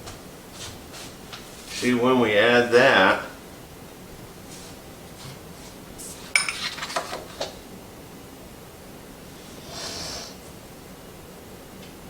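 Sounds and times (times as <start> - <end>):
utensils clinking against dishes: 6.3 - 7.4.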